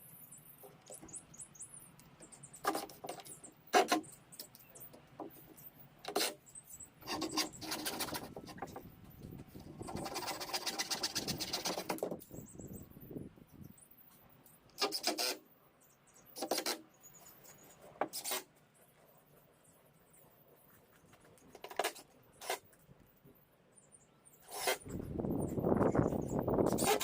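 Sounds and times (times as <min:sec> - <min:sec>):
faint bird chirps: 0:00.0 - 0:17.8, 0:18.7 - 0:27.0
rasping scraping strokes: 0:07.0 - 0:08.8, 0:09.6 - 0:12.2, 0:14.8 - 0:15.4, 0:18.0 - 0:18.5, 0:21.6 - 0:22.7, 0:24.4 - 0:25.0, 0:26.6 - 0:27.0.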